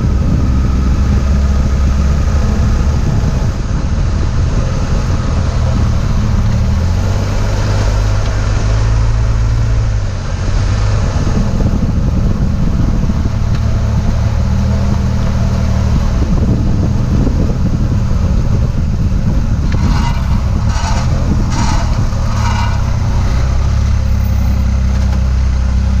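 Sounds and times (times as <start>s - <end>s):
engine and road drone: 0.0s - 26.0s
harsh grinding: 13.0s - 26.0s.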